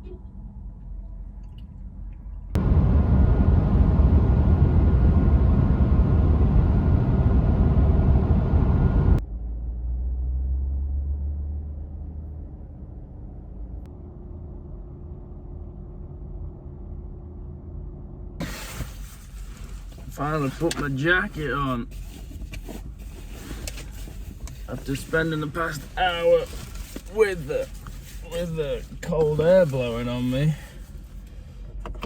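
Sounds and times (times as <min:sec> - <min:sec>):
road noise: 0:00.0 - 0:15.6, 0:18.4 - 0:32.0
truck engine: 0:02.6 - 0:15.7.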